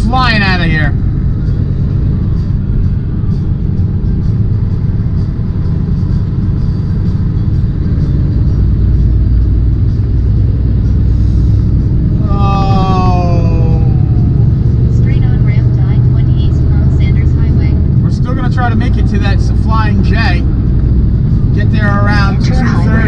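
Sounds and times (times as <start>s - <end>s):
diesel truck engine droning: 0.0s - 23.0s
person speaking: 12.2s - 14.4s, 21.6s - 23.0s.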